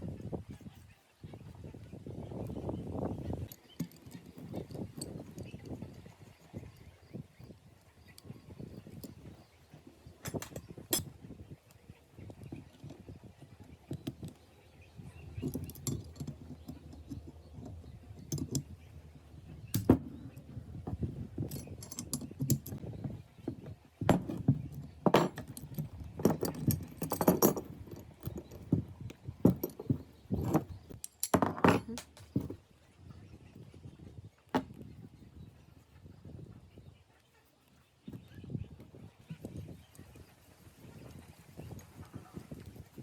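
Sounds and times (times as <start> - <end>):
metal parts clinking: 3.4 - 6.9, 10.1 - 11.1, 15.0 - 22.8, 24.0 - 28.8, 29.4 - 32.6.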